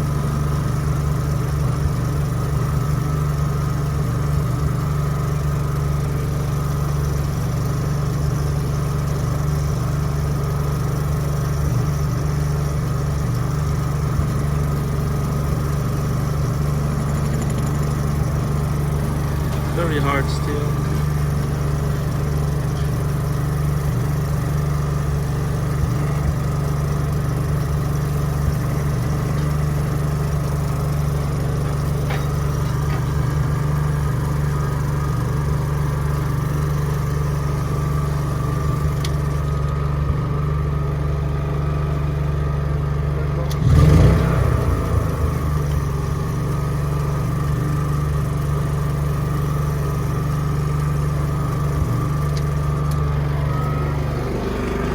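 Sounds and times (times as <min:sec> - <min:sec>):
generator engine running: 0:00.0 - 0:54.9.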